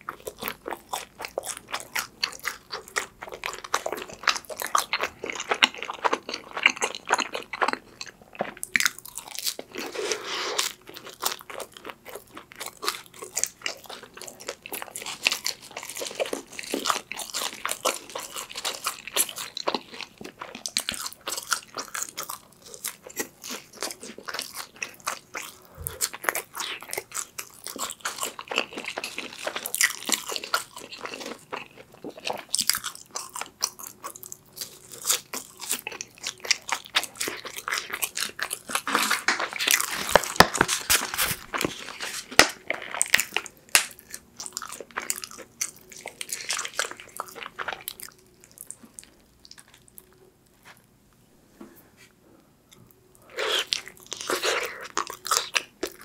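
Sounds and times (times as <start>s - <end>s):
crunchy chewing: 0.0s - 50.8s, 52.7s - 56.0s
mouth sounds: 25.7s - 26.1s.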